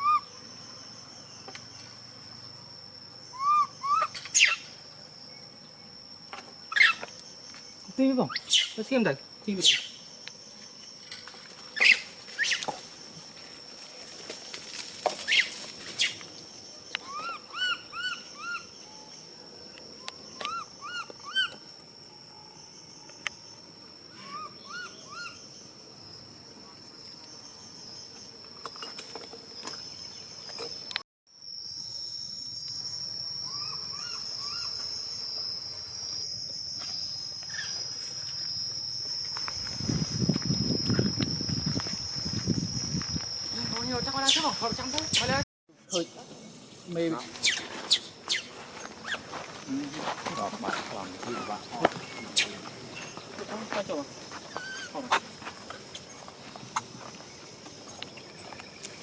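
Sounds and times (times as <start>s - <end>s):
high-pitched insect drone: 0.0s - 59.0s
rising chirping calls: 3.3s - 4.7s, 8.3s - 8.9s, 9.5s - 10.1s, 11.8s - 12.7s, 15.2s - 16.2s, 17.0s - 19.2s, 24.1s - 25.6s, 47.3s - 49.3s, 51.2s - 53.3s.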